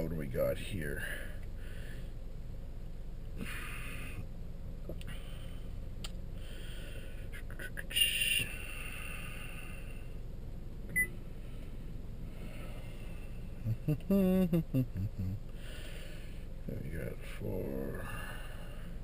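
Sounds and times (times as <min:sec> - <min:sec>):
car engine cabin hum: 0:00.0 - 0:19.0
brief beep: 0:10.9 - 0:11.2.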